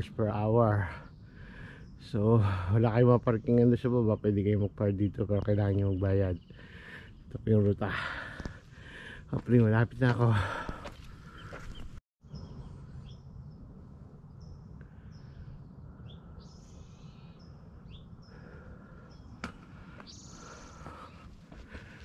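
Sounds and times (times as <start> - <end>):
steady low rumble: 0.0 - 22.0
high bird chirps: 20.0 - 21.3.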